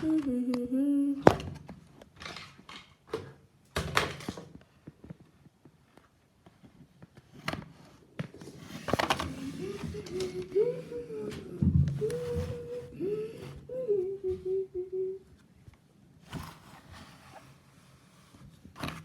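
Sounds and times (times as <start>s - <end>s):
person humming: 0.0s - 1.4s, 9.3s - 15.3s.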